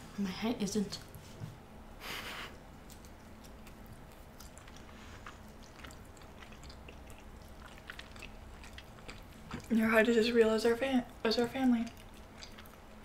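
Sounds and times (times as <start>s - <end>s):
chewing with mouth clicks: 2.7s - 13.0s.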